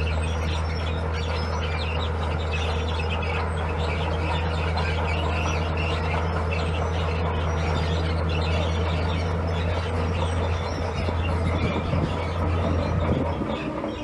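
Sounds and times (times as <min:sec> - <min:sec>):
birds chirping: 0:00.0 - 0:14.0
diesel engine droning: 0:00.0 - 0:14.0.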